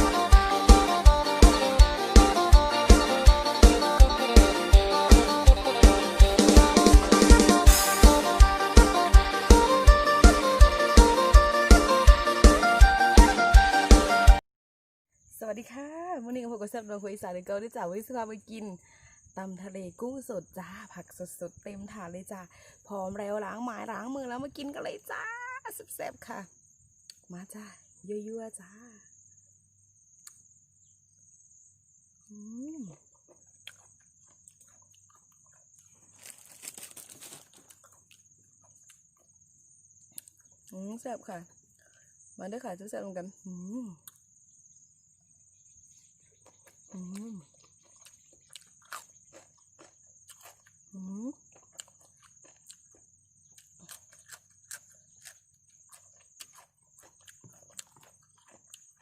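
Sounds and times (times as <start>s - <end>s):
person humming: 0.0s - 12.2s, 32.3s - 33.0s, 47.0s - 47.4s, 51.0s - 51.3s
insect trill: 0.0s - 13.1s, 15.1s - 59.0s
crickets chirping: 0.0s - 14.0s, 15.1s - 59.0s
chewing raw vegetables: 32.4s - 39.4s, 40.1s - 40.9s, 46.0s - 59.0s
loud crunching: 33.2s - 39.0s, 47.8s - 50.7s, 53.6s - 59.0s.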